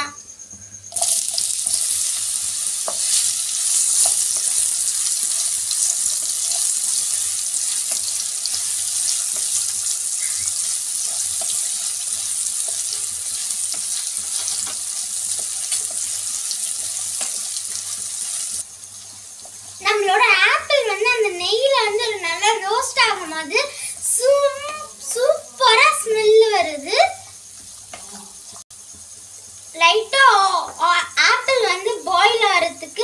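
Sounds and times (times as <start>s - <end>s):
apple pieces sizzling in oil: 0.9s - 33.0s.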